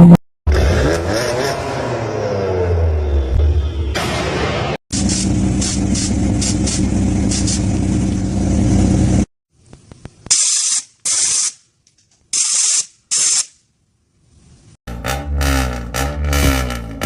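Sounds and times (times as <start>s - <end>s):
sharp hissing bursts: 5.0s - 7.7s, 10.2s - 11.6s, 12.3s - 13.6s
car engine running: 5.0s - 9.3s.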